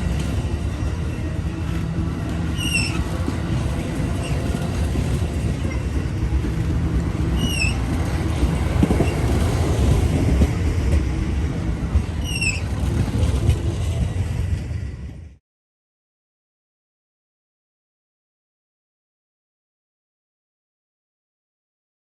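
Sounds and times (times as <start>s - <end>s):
freight train rumble and clatter: 0.0s - 15.4s.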